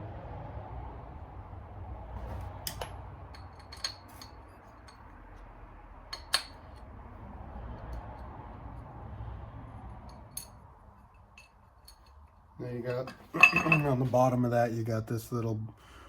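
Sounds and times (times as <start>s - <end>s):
metal parts clinking: 2.6s - 5.0s.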